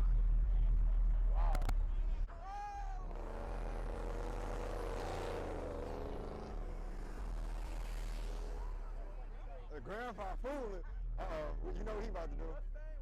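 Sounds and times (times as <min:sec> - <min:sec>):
steady low rumble: 0:00.0 - 0:02.3
car engine driving past: 0:02.9 - 0:09.5.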